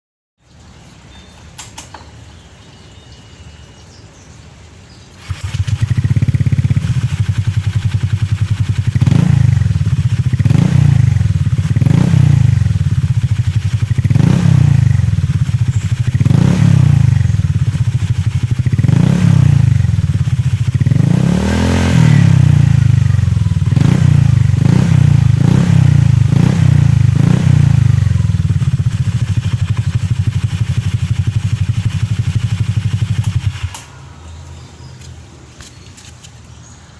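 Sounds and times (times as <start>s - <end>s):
scooter engine revving: 5.1s - 33.9s.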